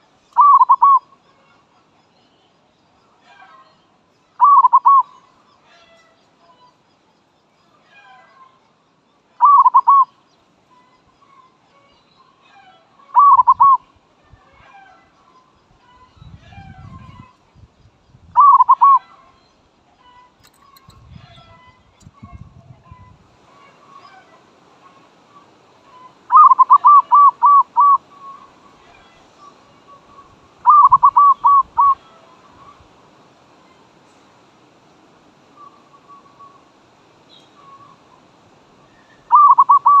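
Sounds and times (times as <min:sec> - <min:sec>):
faint bird calls: 0:00.0 - 0:06.9, 0:09.4 - 0:17.5, 0:18.3 - 0:34.3, 0:35.5 - 0:40.0
dove cooing: 0:00.4 - 0:01.0, 0:04.4 - 0:05.1, 0:09.4 - 0:10.1, 0:13.2 - 0:13.8, 0:18.4 - 0:19.0, 0:26.3 - 0:28.5, 0:30.6 - 0:32.0, 0:39.2 - 0:40.0.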